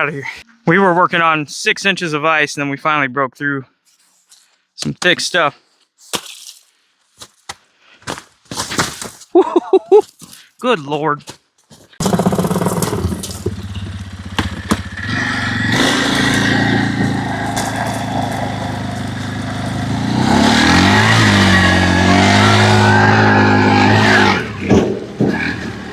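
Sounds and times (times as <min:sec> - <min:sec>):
excavator engine running: 0:12.0 - 0:25.9.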